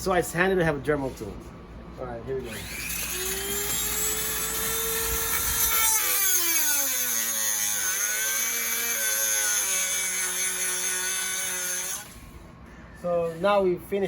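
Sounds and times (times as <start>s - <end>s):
rotary tool cutting bolt: 2.5s - 12.2s.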